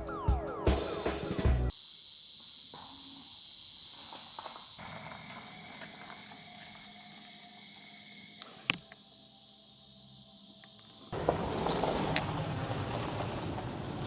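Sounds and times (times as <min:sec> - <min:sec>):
insects chirring: 0:01.7 - 0:11.3
sharp click: 0:08.4 - 0:09.0.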